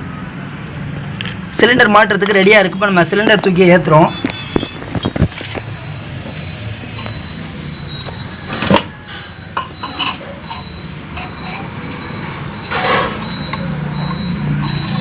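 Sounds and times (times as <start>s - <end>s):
metal scrape: 9.0s - 13.3s
metallic clinks and knocks: 9.6s - 12.2s.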